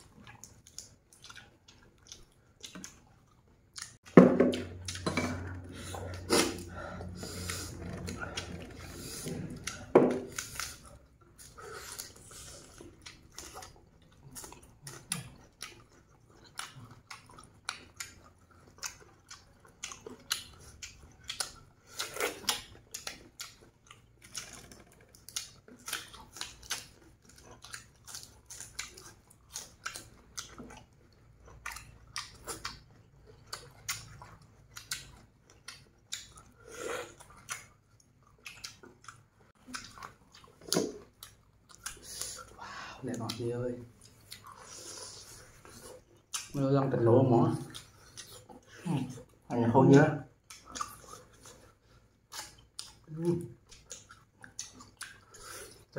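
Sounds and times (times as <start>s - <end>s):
people chewing and smacking: 0.0s - 55.9s.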